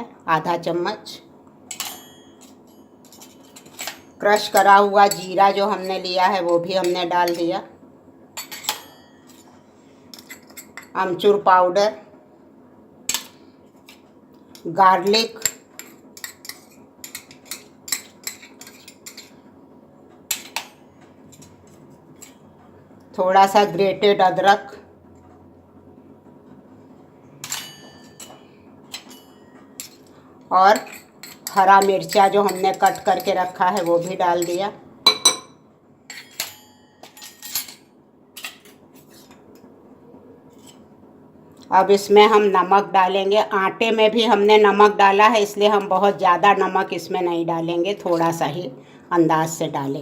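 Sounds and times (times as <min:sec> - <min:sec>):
spoon clinking against a bowl: 0:01.7 - 0:07.5, 0:15.4 - 0:19.3, 0:27.4 - 0:30.1, 0:30.7 - 0:37.8.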